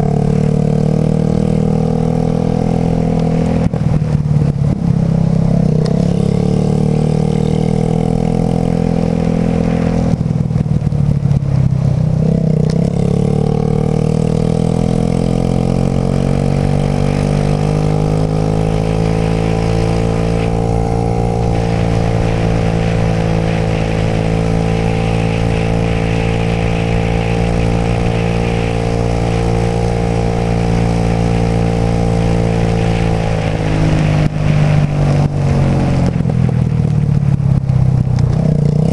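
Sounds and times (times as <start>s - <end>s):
scooter engine accelerating: 0.0s - 38.9s
wind hiss: 14.4s - 38.9s.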